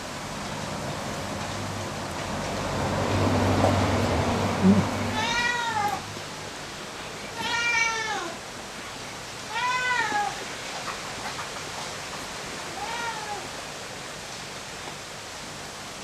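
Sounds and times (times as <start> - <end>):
cat meowing: 4.6 - 6.1, 7.3 - 8.4, 9.5 - 10.4, 12.7 - 13.5.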